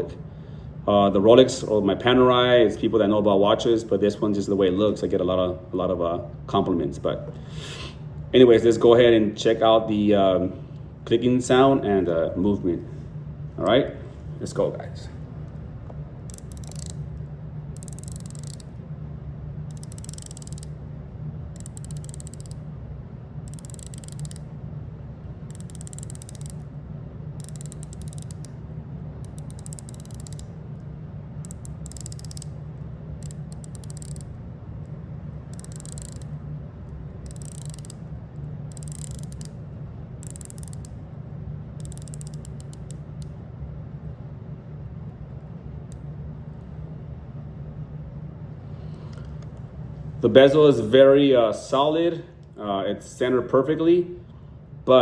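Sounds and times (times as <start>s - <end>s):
steady low hum: 0.0s - 55.0s
watch bezel ratchet clicks: 16.3s - 17.1s, 17.8s - 18.8s, 19.7s - 20.8s, 21.5s - 22.6s, 23.4s - 24.5s, 25.5s - 26.7s, 27.4s - 28.6s, 29.2s - 30.5s, 31.4s - 32.6s, 33.2s - 34.4s, 35.5s - 36.4s, 37.2s - 38.0s, 38.7s - 39.6s, 40.2s - 41.0s, 41.8s - 43.3s.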